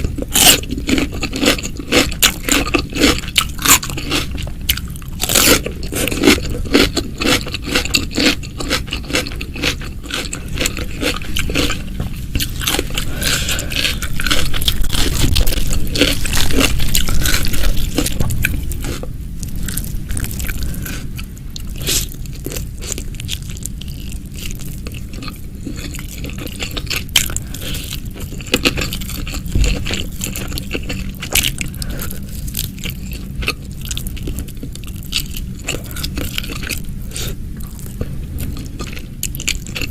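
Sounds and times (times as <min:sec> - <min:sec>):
person crunching crisp food: 0:00.0 - 0:39.9.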